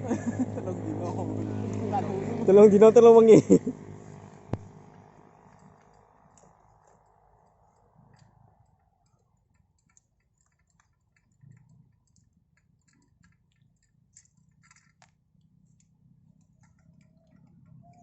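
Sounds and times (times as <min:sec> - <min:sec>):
faint small clicks: 0:05.5 - 0:18.0.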